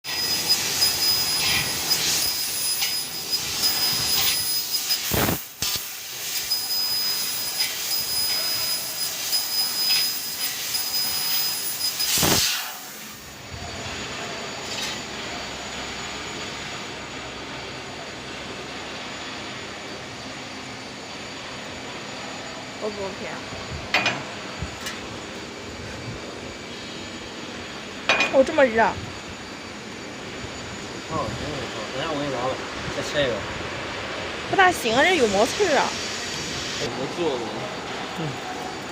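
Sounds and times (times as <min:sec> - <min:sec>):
assist gas hissing: 0:00.1 - 0:13.4, 0:34.9 - 0:36.9.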